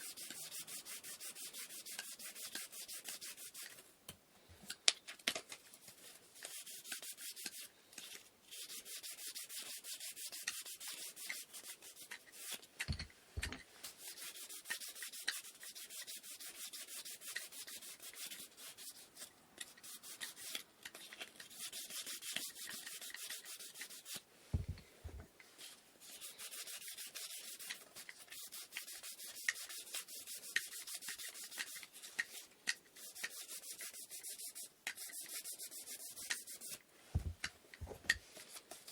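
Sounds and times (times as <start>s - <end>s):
sandpaper rubbing wood: 0.0s - 3.7s, 8.5s - 12.6s, 13.9s - 20.6s, 21.5s - 24.7s, 26.0s - 37.3s.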